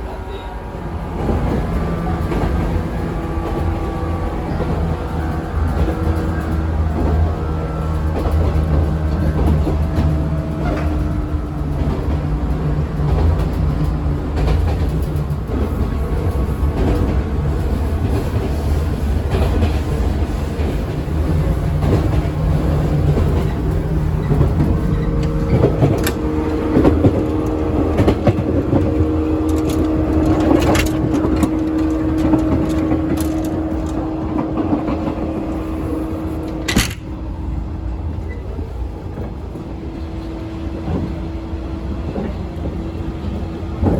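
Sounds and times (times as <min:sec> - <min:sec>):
train motor hum: 0:00.0 - 0:43.9
train wheels rumbling on rail: 0:00.0 - 0:43.9
wheels clacking over rail joints: 0:00.1 - 0:43.9
loud clank: 0:36.6 - 0:37.1.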